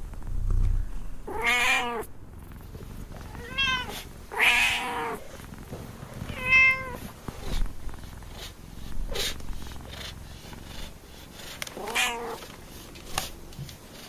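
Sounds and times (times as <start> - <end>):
cat meowing: 1.3 - 2.1, 3.2 - 5.2, 6.3 - 7.0, 11.8 - 12.4.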